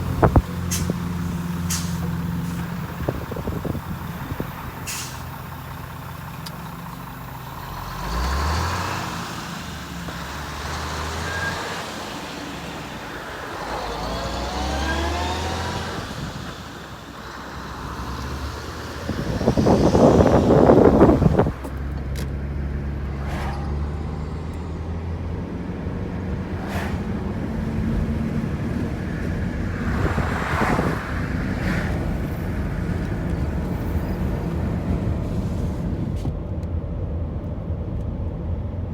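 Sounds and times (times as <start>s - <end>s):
truck engine running: 0.0s - 38.9s
loud rushing burst: 26.4s - 27.8s.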